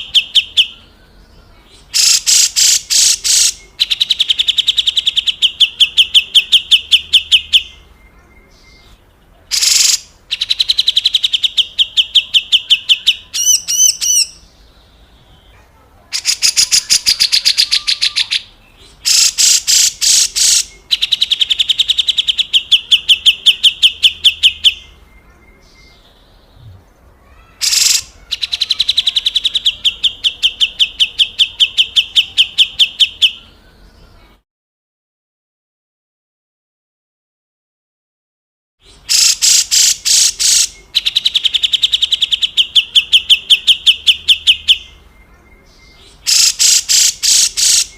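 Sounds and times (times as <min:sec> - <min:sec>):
bird giving rasping rattling calls: 0:01.9 - 0:07.4, 0:09.5 - 0:11.9, 0:16.1 - 0:24.5, 0:27.6 - 0:31.0, 0:39.1 - 0:41.9, 0:46.2 - 0:47.9.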